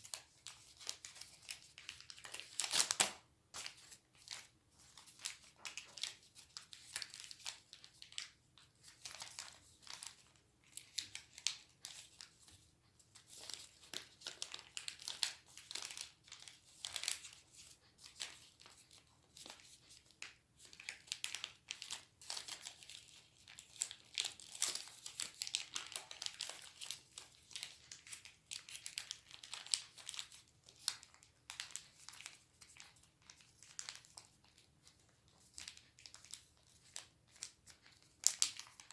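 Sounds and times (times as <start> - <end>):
faint room hum: 0.0 - 38.9
paper crinkling and rustling: 0.0 - 38.9.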